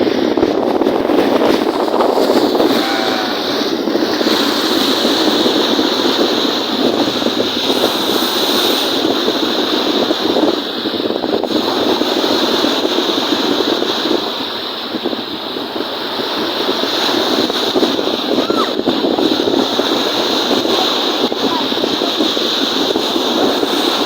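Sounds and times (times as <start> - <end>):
lake waves breaking: 0.0 - 24.0
wind buffeting microphone: 0.0 - 24.0.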